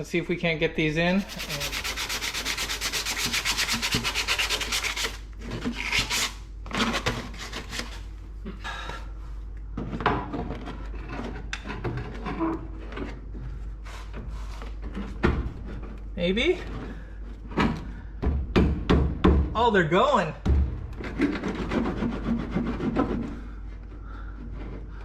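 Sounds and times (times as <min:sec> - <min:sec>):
metal rasping scrape: 0:01.1 - 0:08.0, 0:20.9 - 0:25.0.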